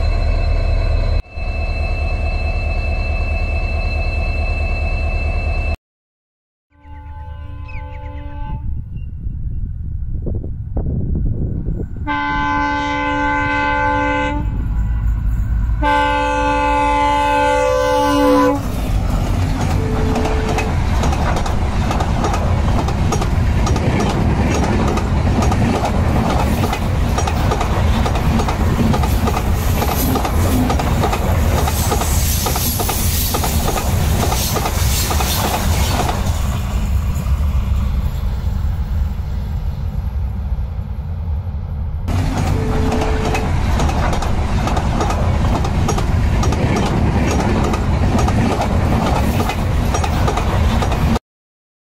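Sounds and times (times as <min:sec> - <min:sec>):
locomotive air horn blasts: 0:06.7 - 0:08.8, 0:12.0 - 0:14.6, 0:15.8 - 0:18.7, 0:19.6 - 0:20.7, 0:42.2 - 0:43.5
wheels clacking over rail joints: 0:18.9 - 0:36.4, 0:42.1 - 0:51.2.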